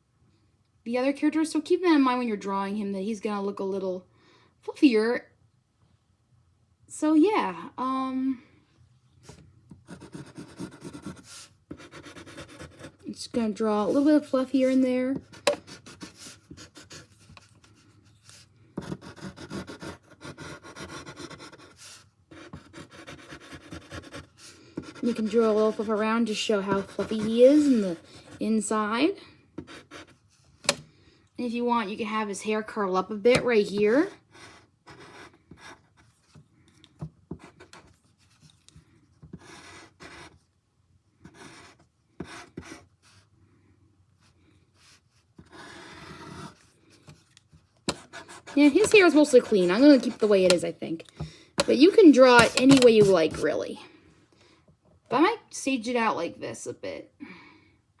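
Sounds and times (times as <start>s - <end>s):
scratchy drawing strokes: 13.7s - 28.7s, 47.9s - 50.7s, 51.6s - 53.6s.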